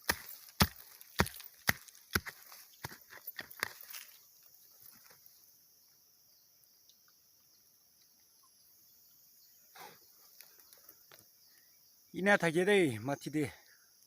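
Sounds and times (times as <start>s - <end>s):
sharp digging strikes: 0.0s - 4.0s
insects droning: 0.0s - 14.0s.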